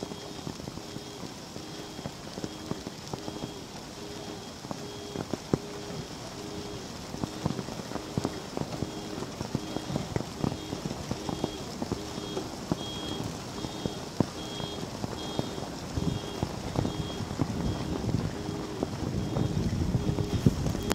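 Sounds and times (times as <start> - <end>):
hail and rain hissing: 0.0 - 20.9
hailstones striking hard surfaces: 0.0 - 20.9
high electronic beep: 1.0 - 7.4.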